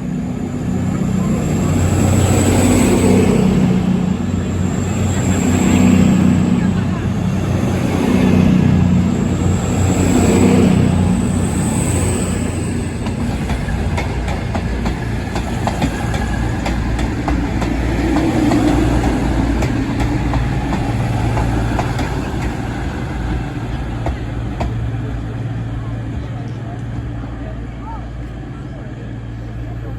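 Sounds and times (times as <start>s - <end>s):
train rumbling on track: 0.0s - 29.9s.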